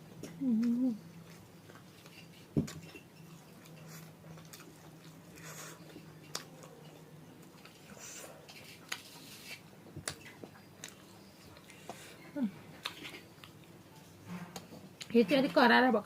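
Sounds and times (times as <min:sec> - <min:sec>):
low electrical hum: 0:00.0 - 0:16.0
person chewing food: 0:00.1 - 0:15.1
person humming mmm: 0:00.2 - 0:01.1.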